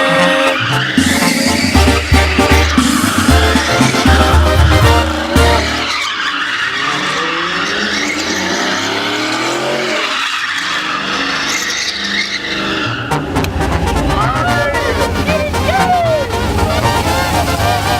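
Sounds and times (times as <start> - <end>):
truck engine revving: 0.0 - 17.9
tyres squealing and skidding: 0.0 - 17.9.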